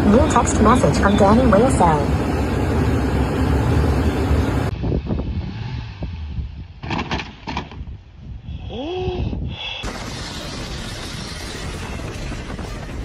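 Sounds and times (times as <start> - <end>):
motor vehicle road noise: 0.0 - 8.5.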